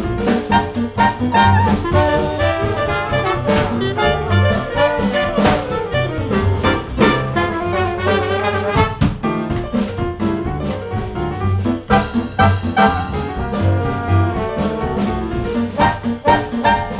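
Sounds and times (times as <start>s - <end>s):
brass-led jazz music: 0.0s - 16.9s.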